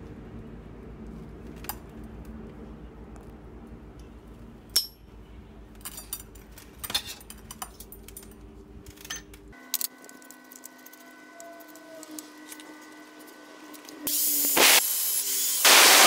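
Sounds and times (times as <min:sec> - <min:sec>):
small metal parts clinking: 0:05.7 - 0:11.8.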